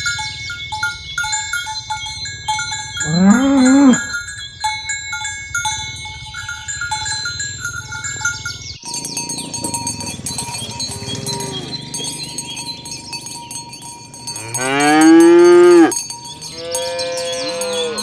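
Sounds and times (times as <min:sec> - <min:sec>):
cowbells jingling: 0:00.0 - 0:18.0
cows mooing: 0:02.9 - 0:04.2, 0:09.0 - 0:18.0.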